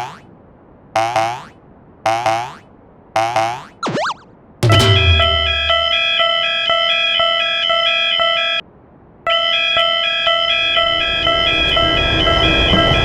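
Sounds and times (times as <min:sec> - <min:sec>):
railroad crossing bell ringing: 0:04.6 - 0:08.6, 0:09.3 - 0:13.0.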